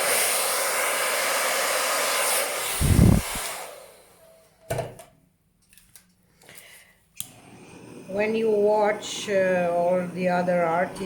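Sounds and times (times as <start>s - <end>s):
hair dryer blowing air: 0.0s - 4.2s, 7.2s - 11.0s.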